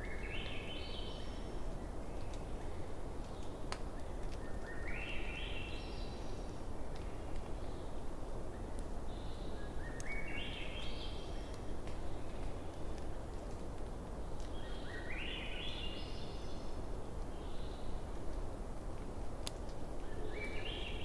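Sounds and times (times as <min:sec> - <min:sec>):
bonfire crackling and popping: 0:02.0 - 0:04.6, 0:06.3 - 0:07.7, 0:11.3 - 0:14.6, 0:18.0 - 0:20.1.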